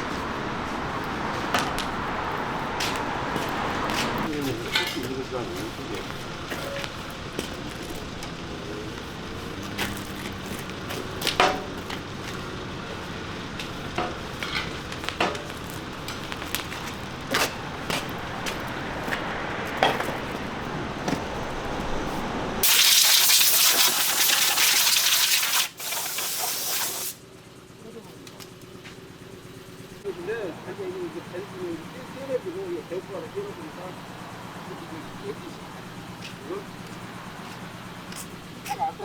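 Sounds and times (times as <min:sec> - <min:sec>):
metal clinks and knocks: 0:04.5 - 0:05.3, 0:13.9 - 0:18.7
compressed air hissing: 0:22.6 - 0:27.3
steady low hum: 0:27.2 - 0:39.0.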